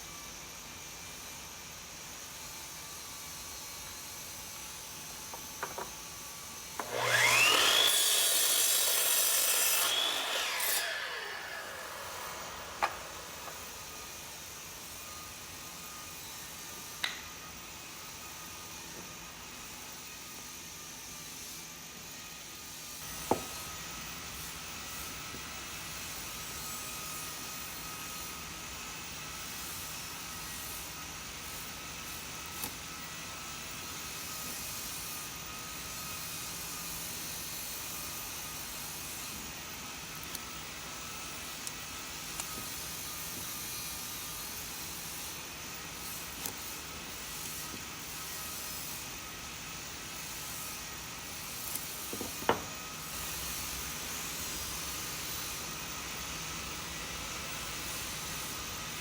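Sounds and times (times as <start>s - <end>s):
power tool whirring: 6.6s - 15.9s.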